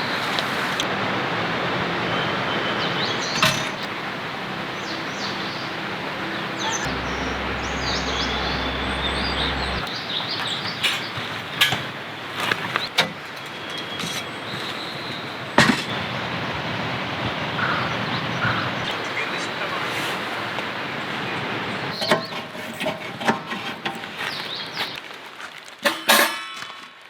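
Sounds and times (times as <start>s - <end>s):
steady rushing outdoor noise: 0.0s - 10.3s, 15.3s - 22.0s
small birds chirping: 2.1s - 11.6s.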